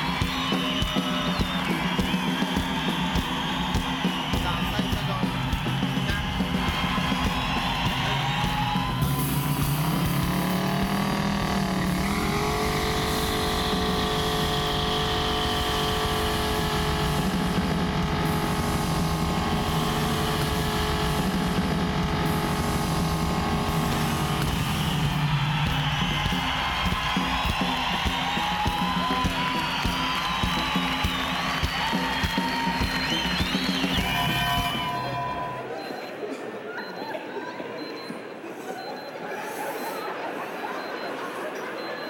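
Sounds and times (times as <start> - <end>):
loud music: 0.0 - 35.6
car engine revving: 6.3 - 28.0.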